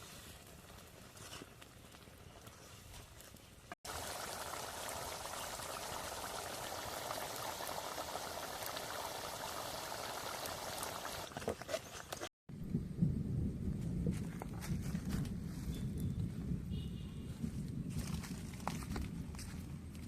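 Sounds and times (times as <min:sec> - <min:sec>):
curry boiling in a pot: 0:03.9 - 0:11.4.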